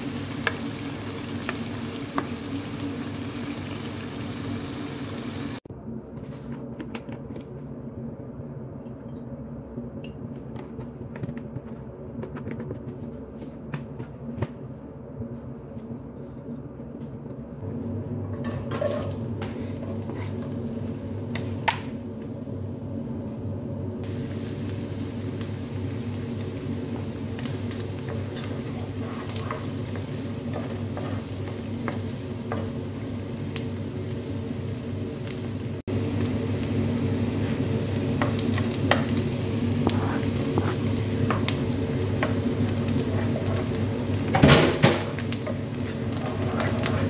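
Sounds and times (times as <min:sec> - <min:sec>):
vegetables frying in hot oil: 0:00.0 - 0:05.6, 0:24.0 - 0:47.0
onions sizzling in oil: 0:00.0 - 0:05.7, 0:24.0 - 0:47.0.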